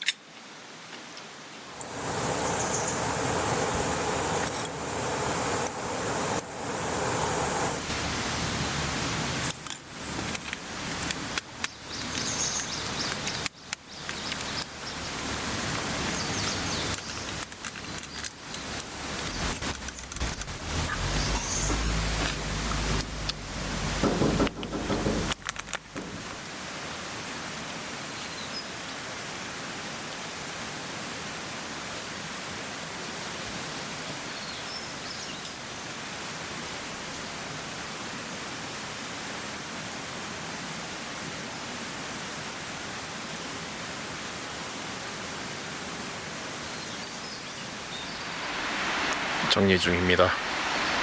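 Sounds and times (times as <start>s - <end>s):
stream water rushing: 1.5s - 34.3s, 35.6s - 51.0s
faint bird chirps: 1.8s - 7.8s, 20.8s - 22.0s
short knocks: 24.0s - 26.4s.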